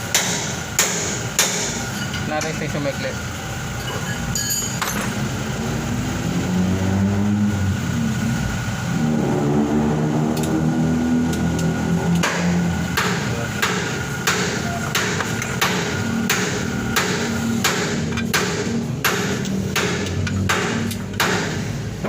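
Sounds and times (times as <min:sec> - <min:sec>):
hammer striking metal: 0:00.0 - 0:02.6, 0:12.2 - 0:22.0.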